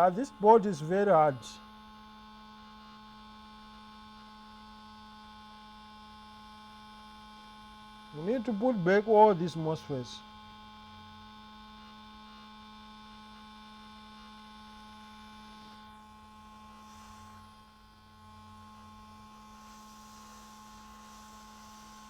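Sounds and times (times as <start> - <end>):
electrical mains hum: 0.0 - 1.6.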